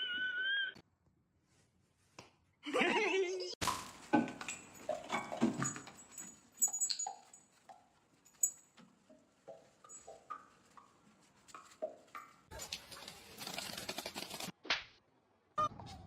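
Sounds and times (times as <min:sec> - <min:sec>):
rustling and clattering: 0:03.6 - 0:14.5.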